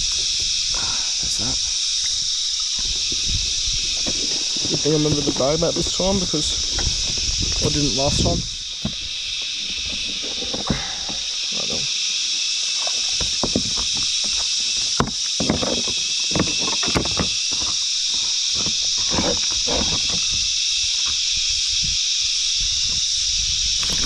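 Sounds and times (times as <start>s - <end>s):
cicadas buzzing: 0.0s - 24.0s
water splashes: 2.8s - 17.0s.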